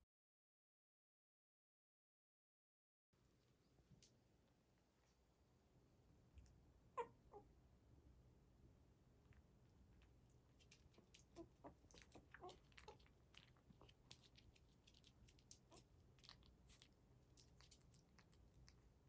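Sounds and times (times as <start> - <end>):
puppies smacking and clicking: 9.9 - 18.9.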